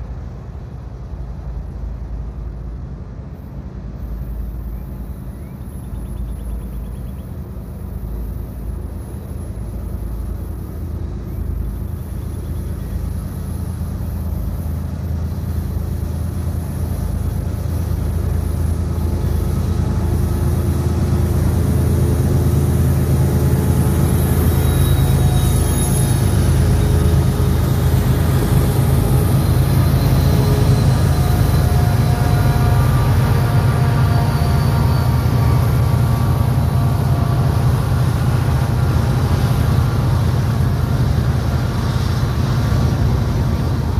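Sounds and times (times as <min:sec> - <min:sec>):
diesel locomotive rumble: 0:00.0 - 0:43.9
faint high-pitched squeal: 0:04.0 - 0:39.6.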